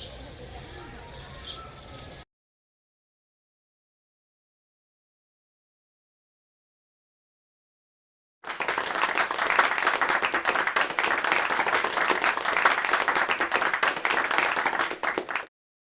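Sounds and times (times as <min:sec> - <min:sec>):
many hands clapping: 0:08.4 - 0:15.5.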